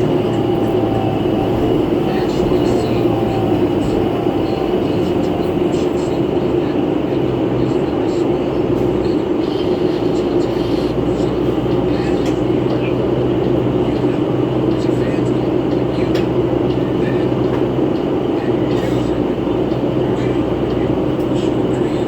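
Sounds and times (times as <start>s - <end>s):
bus running noise: 0.0s - 22.0s.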